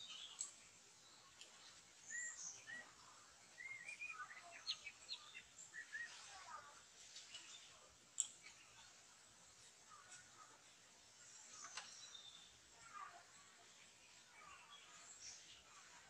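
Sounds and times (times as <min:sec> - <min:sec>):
songbird chirps and whistles: 0:00.0 - 0:06.3, 0:11.4 - 0:13.2.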